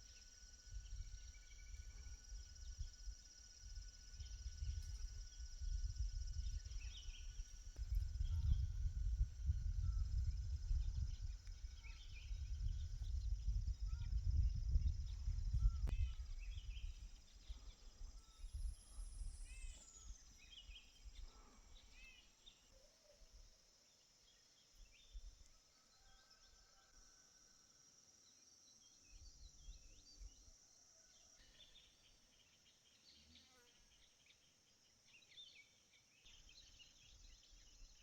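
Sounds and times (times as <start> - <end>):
high insect drone: 0.0 - 22.7.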